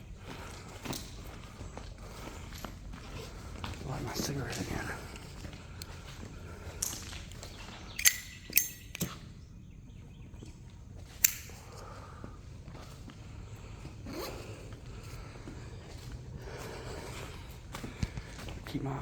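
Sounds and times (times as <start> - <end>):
lighter wheel strikes: 11.2 - 11.6.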